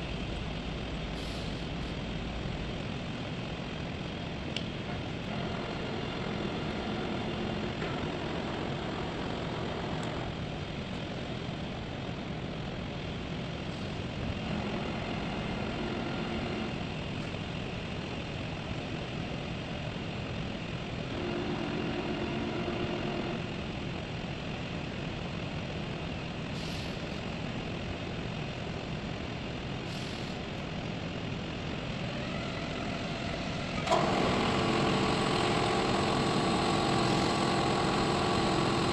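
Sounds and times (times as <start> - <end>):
steady machine noise: 4.9 - 10.6, 20.9 - 23.9, 31.2 - 38.9.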